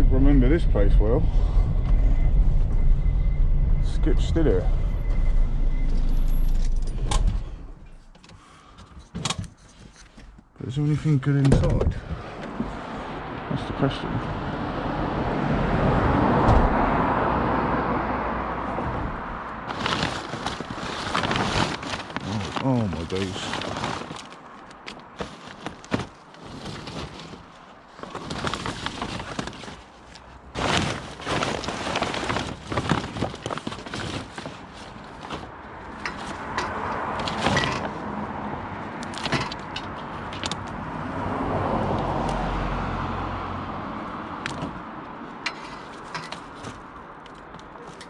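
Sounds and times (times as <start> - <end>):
vehicle passing: 0.0 - 8.0, 12.0 - 25.9, 34.9 - 45.4
scrap junk clattering: 19.7 - 38.0.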